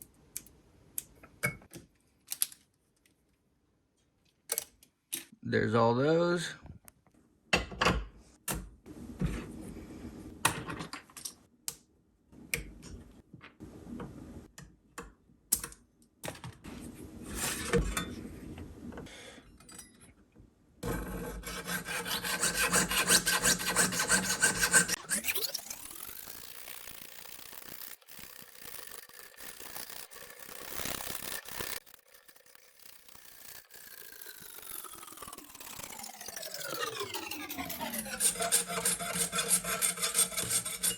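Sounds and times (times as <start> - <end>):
filing and scraping metal: 17.3 - 18.2, 20.8 - 25.4, 36.4 - 40.9
small motorized tool whine: 24.0 - 40.9.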